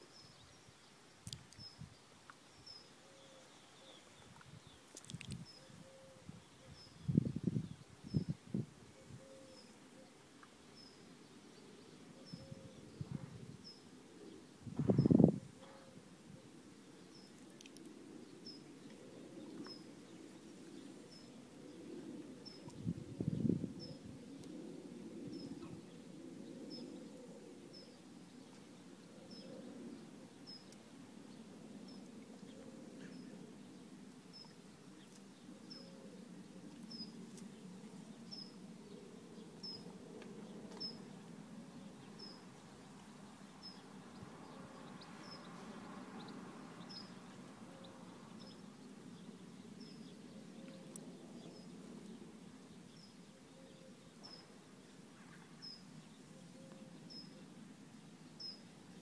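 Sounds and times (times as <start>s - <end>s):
small songbird chirping: 0.0s - 8.6s
faint low background noise: 0.0s - 59.0s.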